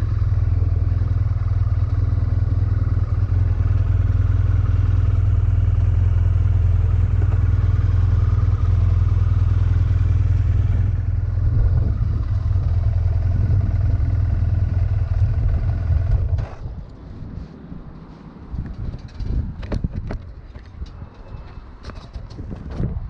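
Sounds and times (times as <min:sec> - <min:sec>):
motorcycle engine droning: 0:00.0 - 0:17.0.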